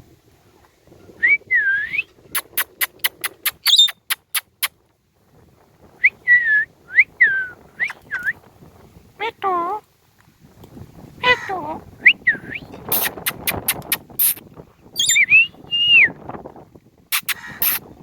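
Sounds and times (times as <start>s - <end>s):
parakeet whistled calls: 3.6s - 4.0s, 15.0s - 16.1s.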